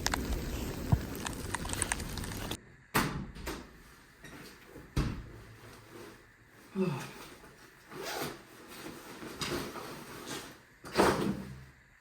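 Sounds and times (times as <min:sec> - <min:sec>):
outdoor noise: 0:00.0 - 0:03.6.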